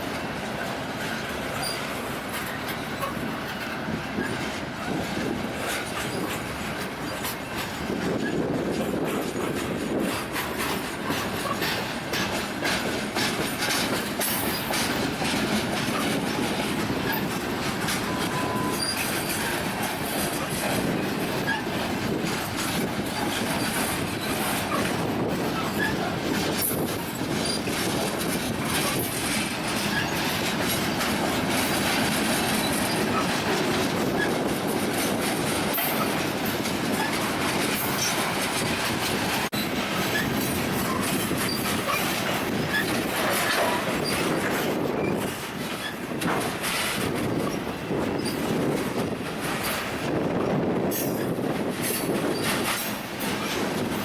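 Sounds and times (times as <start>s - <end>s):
steel wheels rolling on rail: 0.0s - 54.0s
high wheel squeals: 1.1s - 3.2s, 17.1s - 20.4s, 22.7s - 26.1s, 29.7s - 30.7s.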